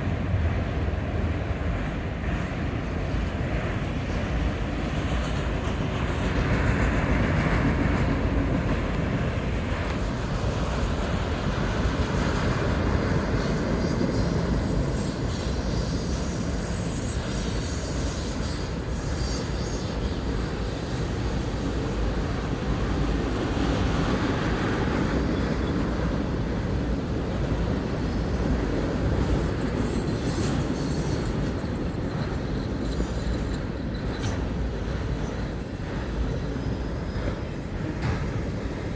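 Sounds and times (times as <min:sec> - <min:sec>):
train wheels rumbling: 0:00.0 - 0:38.9
high-pitched wheel squeals: 0:13.8 - 0:20.2, 0:29.1 - 0:38.9.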